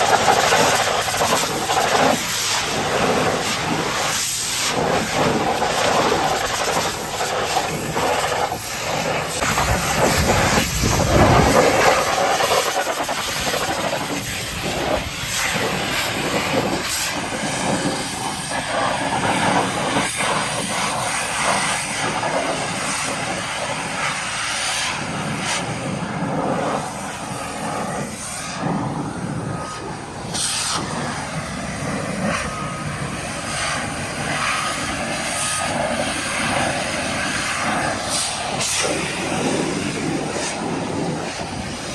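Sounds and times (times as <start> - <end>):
pressure washer water jet hissing: 0.0 - 41.9.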